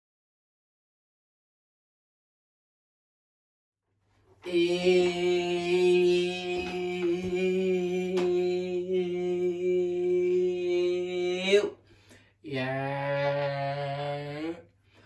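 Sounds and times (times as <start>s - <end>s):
man humming low note: 4.5s - 11.7s, 12.5s - 14.6s.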